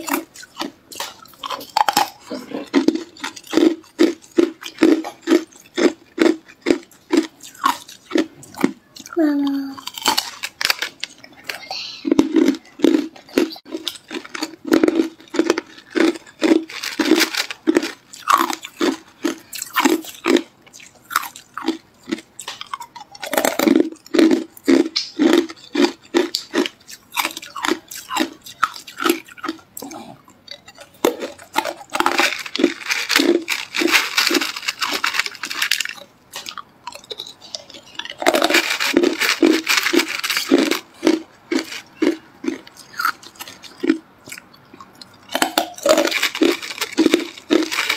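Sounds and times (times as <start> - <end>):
ice being crunched: 31.2 - 36.6, 38.2 - 41.8, 45.3 - 47.9.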